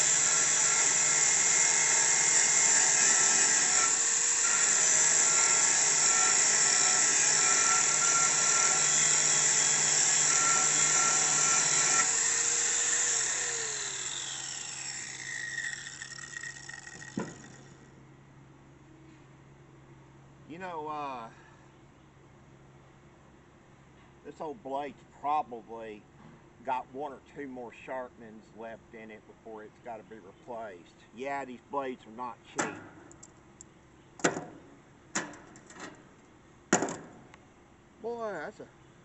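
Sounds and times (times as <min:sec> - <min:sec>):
power grinder sharpening blade: 0:00.0 - 0:17.9.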